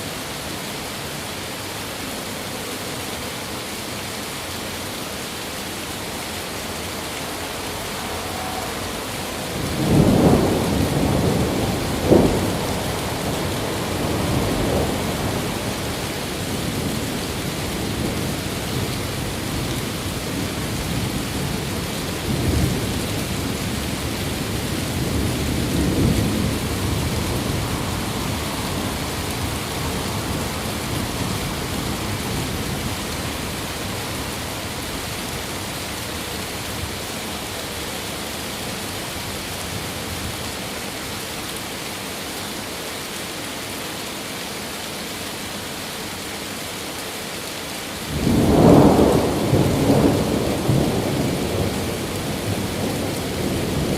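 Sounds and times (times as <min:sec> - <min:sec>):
steady rain: 0:00.0 - 0:53.9
thunder rumbling: 0:07.0 - 0:35.6, 0:48.1 - 0:53.9
thunder crack: 0:08.4 - 0:15.6.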